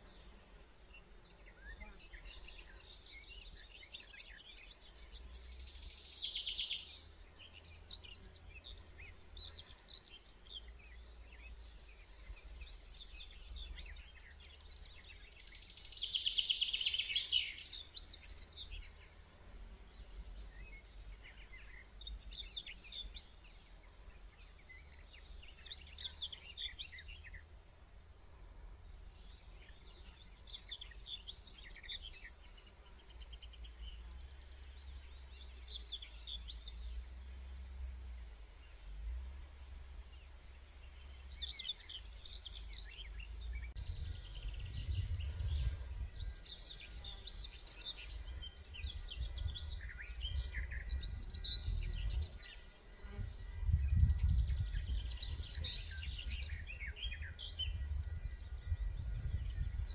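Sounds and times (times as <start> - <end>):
birds chirping and twittering: 0.0 - 27.8, 28.6 - 59.9
low steady rumble: 36.7 - 52.6, 53.2 - 59.9.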